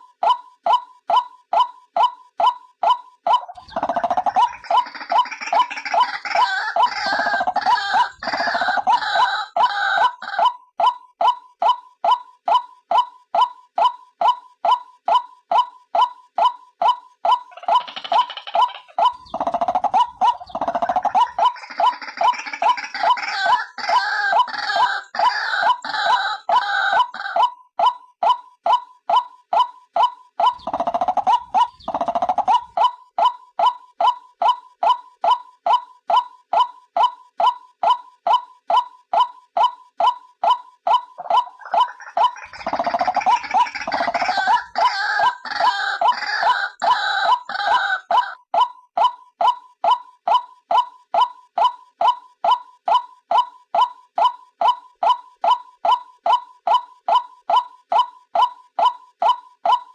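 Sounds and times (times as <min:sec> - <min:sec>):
harsh overlapping bird calls: 0:00.2 - 0:10.6, 0:11.6 - 0:48.4
bird gurgling rattle: 0:03.5 - 0:08.7, 0:17.5 - 0:23.4, 0:41.2 - 0:46.4.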